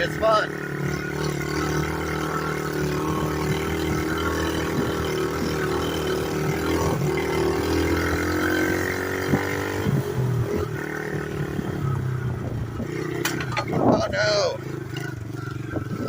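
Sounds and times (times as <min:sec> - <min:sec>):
pit bike engine revving: 0:00.0 - 0:16.0
chassis knocks: 0:13.2 - 0:13.9.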